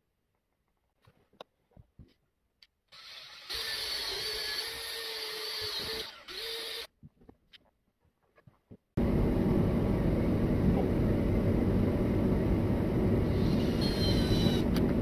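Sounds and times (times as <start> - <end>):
power drill whirring into wood: 2.9 - 6.9, 13.3 - 14.8.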